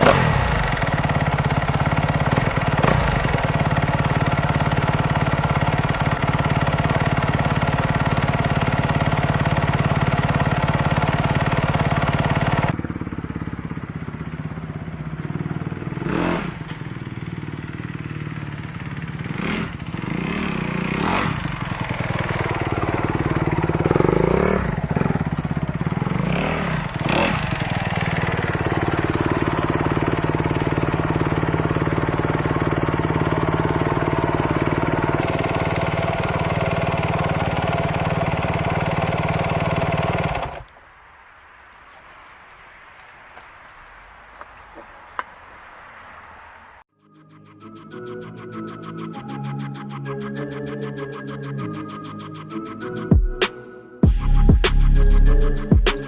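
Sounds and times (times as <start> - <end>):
motocross engine running: 0.0 - 40.7.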